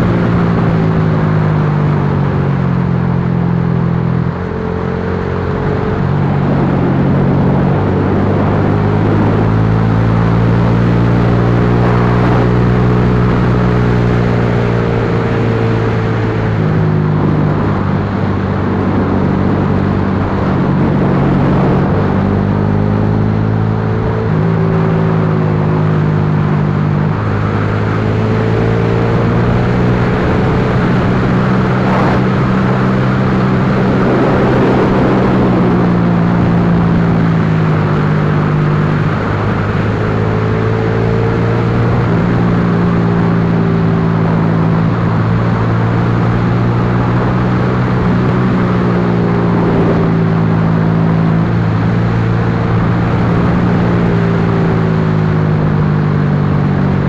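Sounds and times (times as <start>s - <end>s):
motorcycle engine running: 0.0s - 57.0s
wind rushing: 11.3s - 42.3s.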